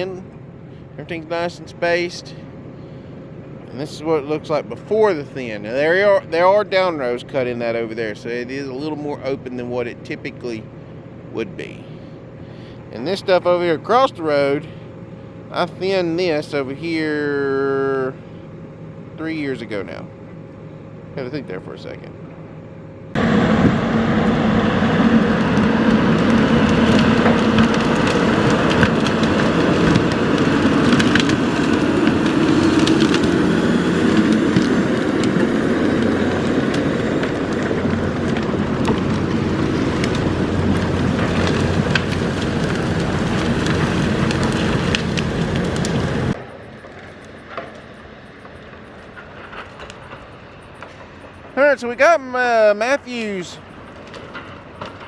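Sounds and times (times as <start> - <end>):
heavy logging machine running: 0.0 - 55.0
wood cracking and splintering: 23.9 - 55.0.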